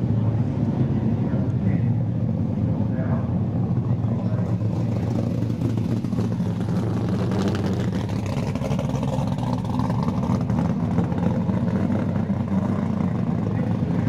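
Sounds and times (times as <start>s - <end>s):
racing car engines droning: 0.0s - 14.0s.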